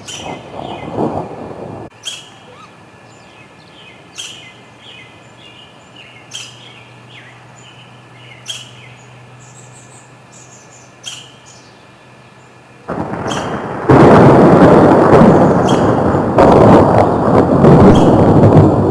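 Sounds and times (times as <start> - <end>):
songbird chirping phrase: 0.0 - 1.2, 2.0 - 13.6
thunder rumbling: 0.0 - 2.0, 12.9 - 18.9.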